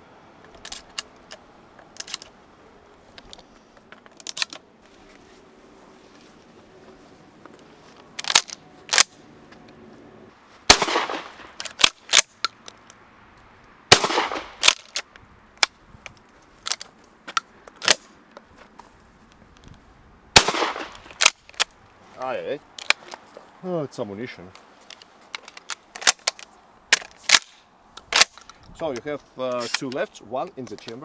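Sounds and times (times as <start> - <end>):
sharp cracks and clicks: 2.0 - 2.3, 4.0 - 4.6, 8.2 - 9.2, 10.7 - 13.0, 13.6 - 18.1, 20.4 - 21.8, 22.8 - 23.2, 24.9 - 30.1
shotgun blasts: 10.7 - 11.6, 13.9 - 14.7, 20.4 - 21.3.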